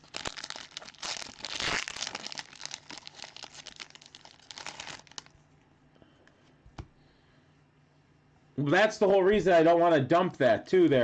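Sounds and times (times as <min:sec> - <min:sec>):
plastic wrapping crinkling and tearing: 0:00.0 - 0:05.3.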